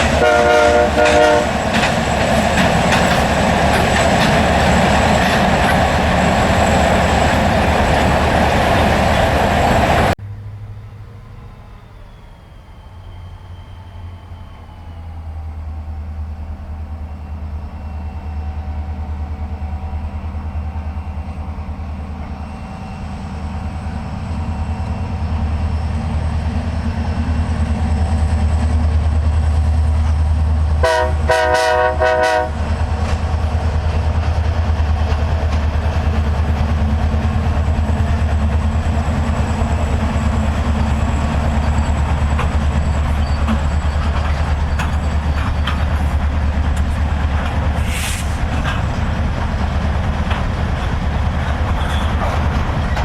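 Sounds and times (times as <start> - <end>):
locomotive air horn blasts: 0.0 - 1.6, 30.8 - 32.7
diesel locomotive engine rumble: 0.0 - 53.0.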